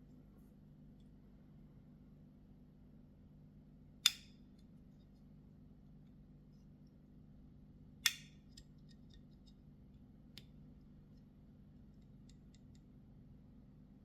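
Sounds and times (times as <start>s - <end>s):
folding knife clicking: 4.0s - 4.4s, 8.0s - 9.0s.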